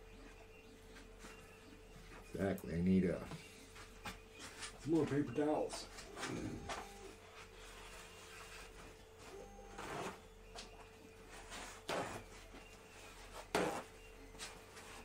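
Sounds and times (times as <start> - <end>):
faint steady hum: 0.0 - 15.0
handling noises scraping: 3.6 - 15.0.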